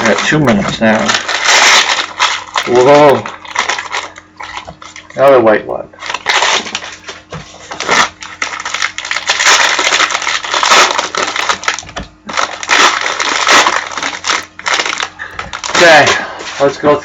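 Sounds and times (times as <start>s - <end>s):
foil wrappers crinkling and tearing: 0.0s - 5.4s, 6.0s - 17.0s.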